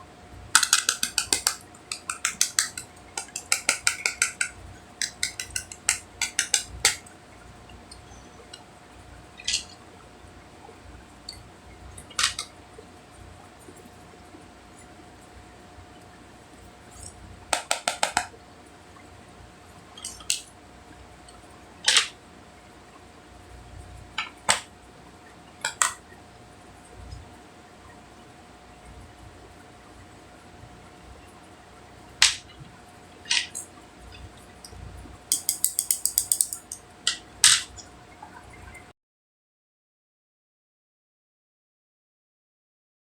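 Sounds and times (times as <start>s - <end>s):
plastic containers clicking: 0.6s - 7.1s, 17.6s - 18.3s, 35.3s - 37.2s.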